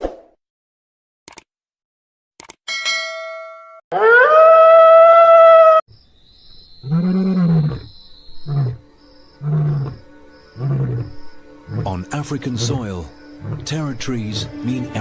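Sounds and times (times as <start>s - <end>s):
lion roaring: 9.4s - 10.0s, 10.6s - 12.0s, 13.4s - 13.7s.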